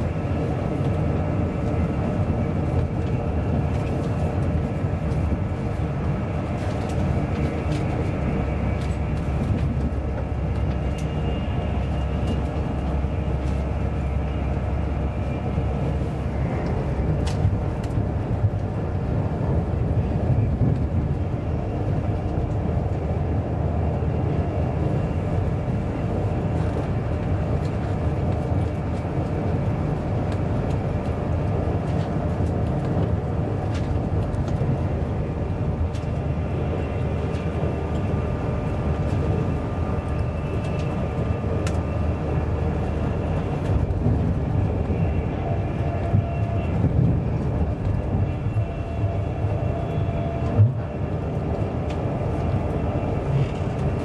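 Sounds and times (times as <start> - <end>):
train wheels rumbling on rails: 0.0 - 54.0
faint rail clicks: 6.3 - 14.6, 16.4 - 18.8, 40.0 - 41.9.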